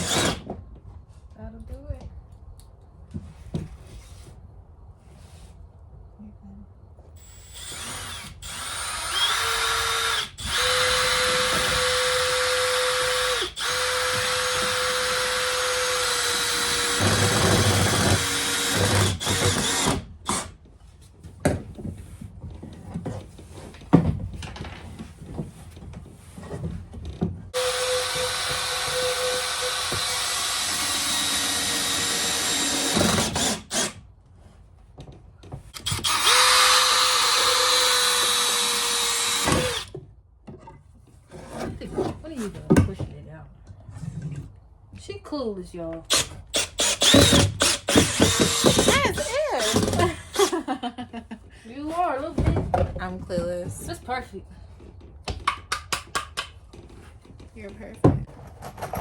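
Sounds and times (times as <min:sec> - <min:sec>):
power drill running: 0:00.0 - 0:00.4, 0:07.2 - 0:20.5, 0:27.6 - 0:34.0, 0:35.8 - 0:39.9, 0:46.1 - 0:50.5
knocks and handling noise: 0:39.9 - 0:45.0.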